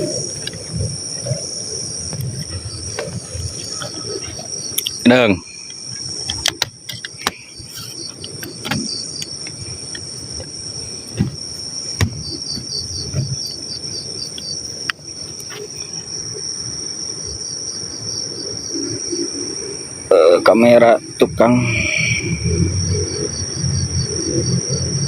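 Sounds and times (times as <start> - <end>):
crickets chirping: 0.0 - 25.0
high-pitched insect drone: 0.0 - 25.0
scattered clicks and knocks: 5.9 - 7.5, 8.1 - 10.5, 11.1 - 13.6.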